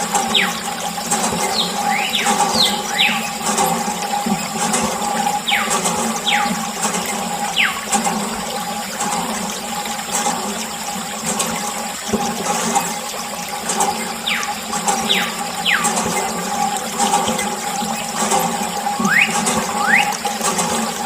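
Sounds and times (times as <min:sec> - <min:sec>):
water running and splashing: 0:00.0 - 0:21.0.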